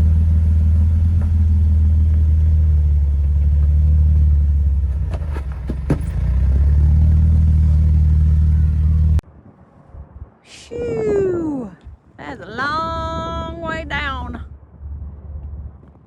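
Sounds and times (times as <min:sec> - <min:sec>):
engine running at low revs: 0:00.0 - 0:09.2.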